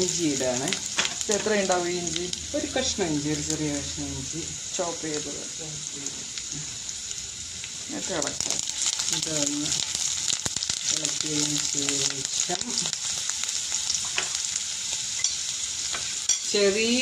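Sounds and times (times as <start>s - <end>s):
food sizzling in hot oil: 0.0s - 17.0s
spatula scraping and tapping wok: 15.2s - 16.5s.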